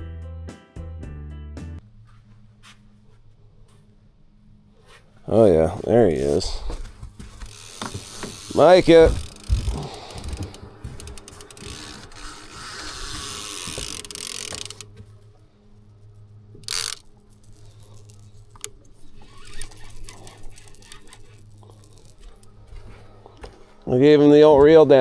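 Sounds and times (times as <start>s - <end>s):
fishing reel whirring and clicking: 7.4s - 22.7s.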